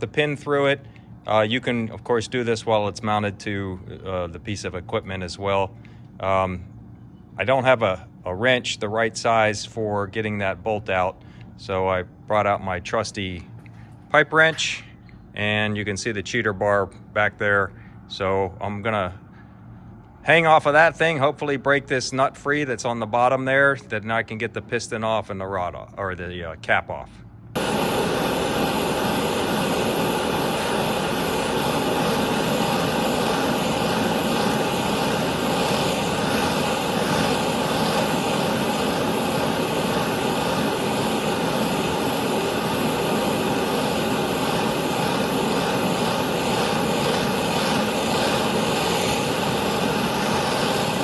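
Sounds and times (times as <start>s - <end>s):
gas torch flame burning: 0.0s - 6.8s, 27.5s - 51.0s.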